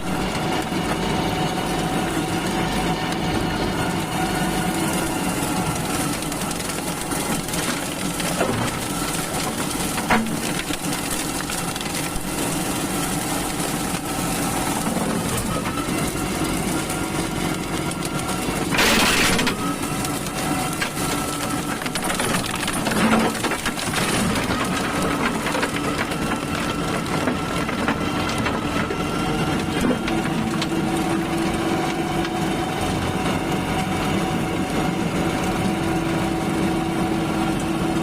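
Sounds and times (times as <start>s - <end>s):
wood splintering: 0.0s - 33.9s
brush mower shredding undergrowth: 0.0s - 38.0s
tractor engine running under load: 0.0s - 38.0s
woody stems crackling: 3.9s - 33.6s.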